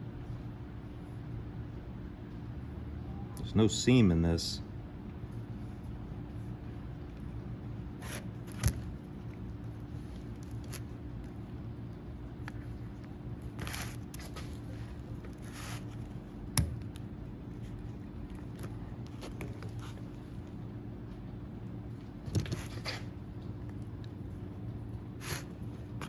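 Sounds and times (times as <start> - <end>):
steady low hum: 0.0 - 26.0
scrapes and rustles of tools: 13.4 - 16.2, 22.3 - 23.2.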